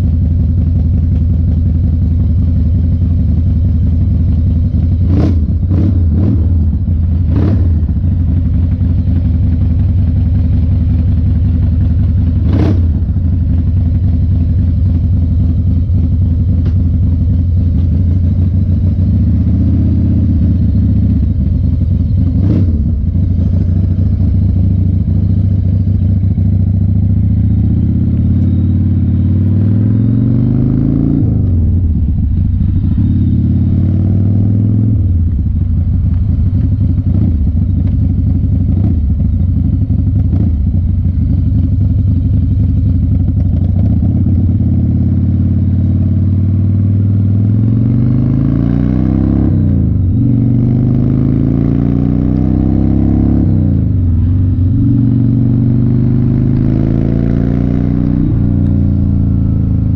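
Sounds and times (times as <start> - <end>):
motorcycle accelerating: 0.0 - 59.9.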